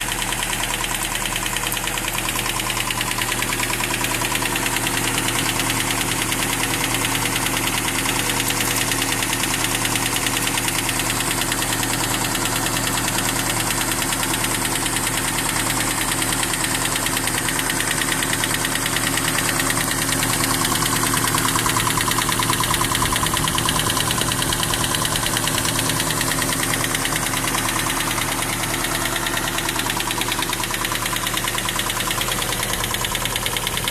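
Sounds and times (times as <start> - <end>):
car engine running: 0.0 - 33.9.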